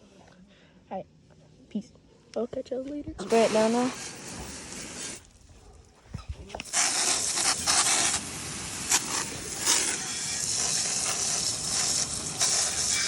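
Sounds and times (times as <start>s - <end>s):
hose spraying water: 3.2s - 5.5s, 6.2s - 13.0s.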